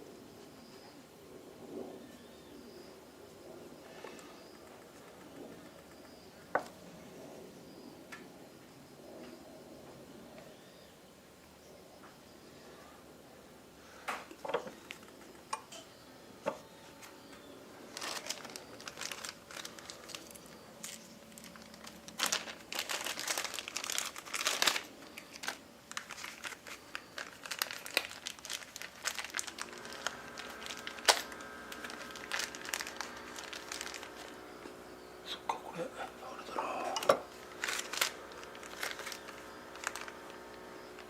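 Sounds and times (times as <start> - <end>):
steady multi-tone hum: 0.0 - 41.0
crinkling and rustling: 14.2 - 15.8, 16.4 - 34.8, 37.0 - 41.0.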